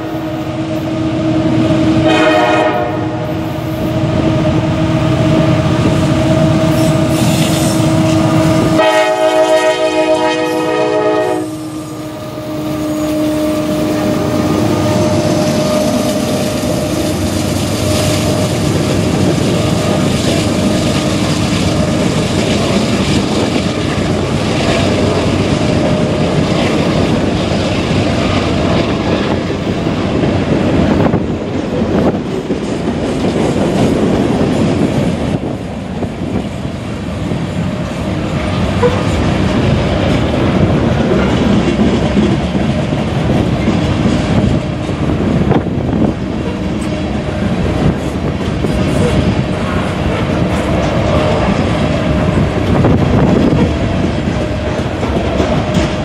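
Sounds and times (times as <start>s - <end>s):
freight train rumbling past: 0.0s - 56.0s
wheels clickety-clack over rails: 13.0s - 56.0s.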